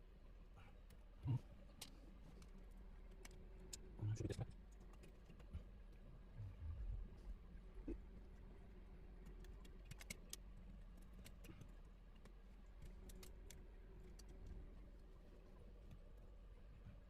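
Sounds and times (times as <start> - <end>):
small clicks of parts handled: 1.7 - 3.9, 9.2 - 14.5.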